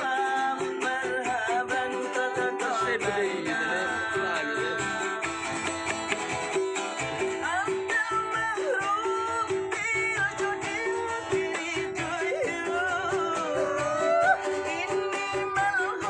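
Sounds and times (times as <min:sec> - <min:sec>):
person singing: 0:00.0 - 0:06.3, 0:07.1 - 0:16.0
strummed string instrument: 0:00.0 - 0:16.0.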